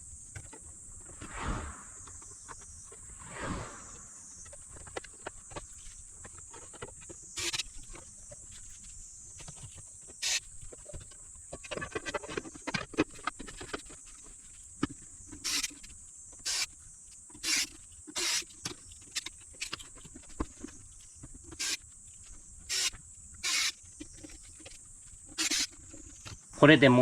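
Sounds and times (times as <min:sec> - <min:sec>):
parts clicking and knocking: 0:09.4 - 0:26.5
electric screwdriver driving screws: 0:16.5 - 0:16.7, 0:17.4 - 0:18.5, 0:22.7 - 0:23.8, 0:25.4 - 0:25.7.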